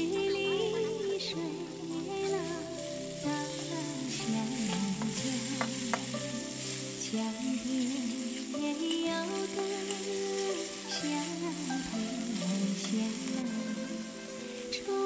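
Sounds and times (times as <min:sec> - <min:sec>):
background music: 0:00.0 - 0:15.0
meat sizzling in a wok: 0:00.0 - 0:15.0
metal spatula scraping a wok: 0:02.2 - 0:14.9.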